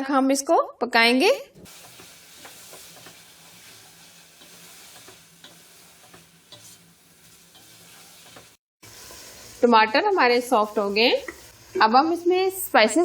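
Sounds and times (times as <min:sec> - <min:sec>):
food sizzling in oil: 0:01.6 - 0:13.0
spoon stirring in a pot: 0:01.7 - 0:09.6, 0:10.8 - 0:11.9.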